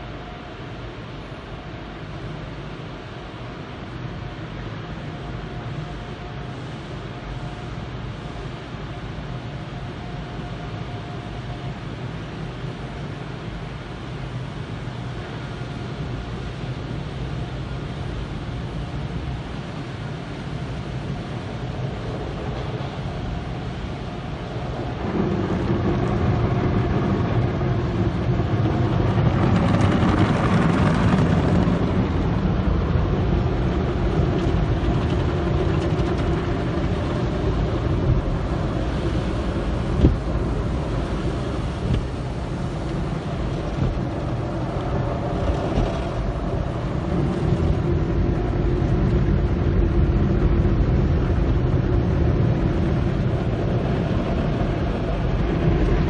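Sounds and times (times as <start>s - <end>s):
car wash spraying and brushing: 12.0s - 56.0s.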